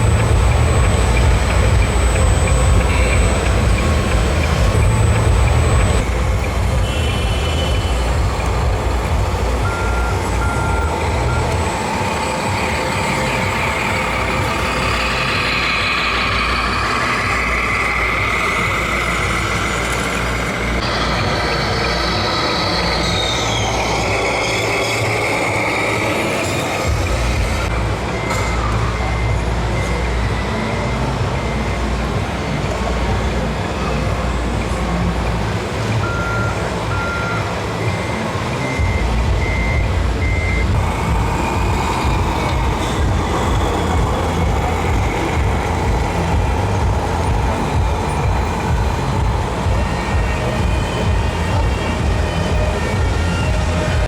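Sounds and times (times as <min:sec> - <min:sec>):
model truck engine noise: 0:00.0 - 0:54.0
rising and falling whine: 0:00.0 - 0:54.0
short high reversing beeps: 0:09.6 - 0:32.0, 0:36.0 - 0:53.9.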